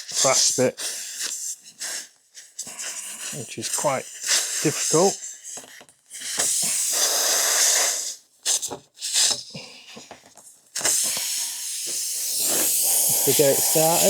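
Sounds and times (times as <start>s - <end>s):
air hissing from tyre: 6.2s - 9.4s, 10.8s - 14.0s
rasp tool in tyre hole: 10.8s - 14.0s.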